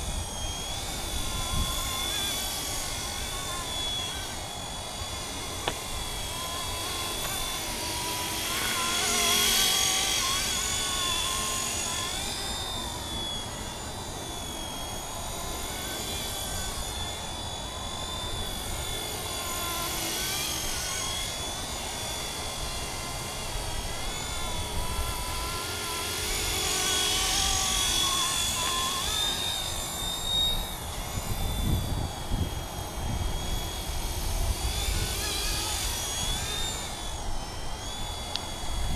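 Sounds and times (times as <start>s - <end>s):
model helicopter motor whine: 0.0s - 38.9s
wind rumble on microphone: 30.9s - 36.4s.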